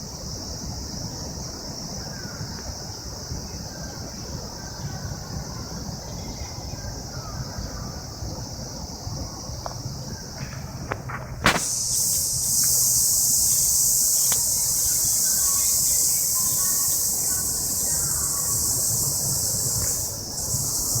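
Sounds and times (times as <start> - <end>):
cicadas buzzing: 0.0 - 21.0
sharp click: 11.4 - 12.2.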